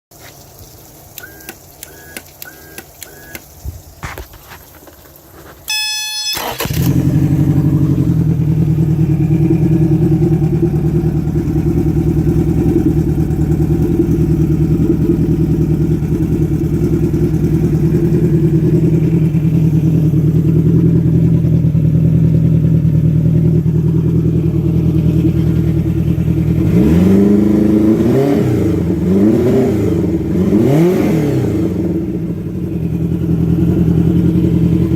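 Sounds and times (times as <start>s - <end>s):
outboard engine idling and revving: 1.1s - 3.4s, 5.8s - 34.9s
short beeps: 1.2s - 3.4s, 5.7s - 6.8s
clicks: 1.2s - 3.5s.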